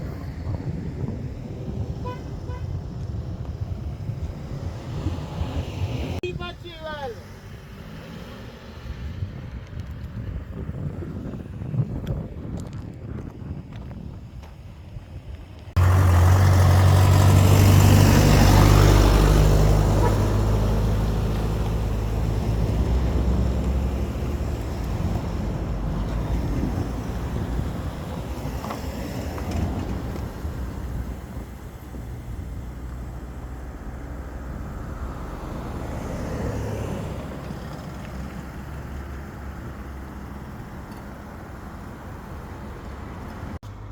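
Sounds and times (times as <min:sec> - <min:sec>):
vehicle passing by: 0:03.6 - 0:06.2, 0:06.9 - 0:10.1, 0:15.8 - 0:43.9.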